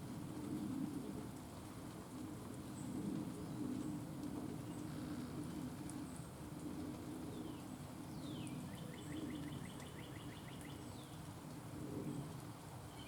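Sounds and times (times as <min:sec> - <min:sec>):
songbird singing: 0:08.1 - 0:11.2.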